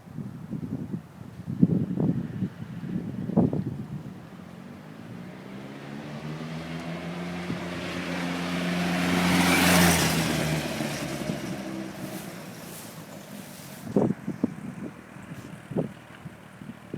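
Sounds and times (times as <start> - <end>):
motorcycle passing by: 4.2 - 16.9.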